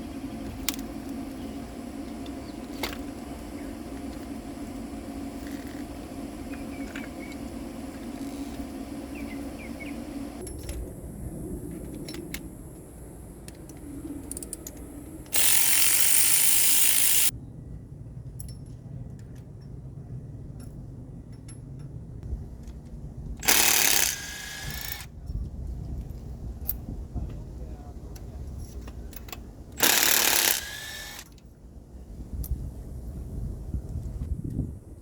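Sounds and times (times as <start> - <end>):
ratchet clicks: 14.3 - 17.3, 23.4 - 25.1, 29.2 - 31.4.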